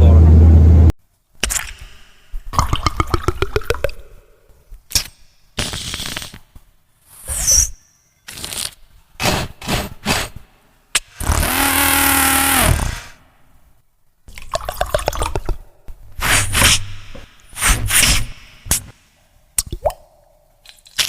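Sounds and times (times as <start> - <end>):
buzzing engine imitation: 11.1 - 13.2.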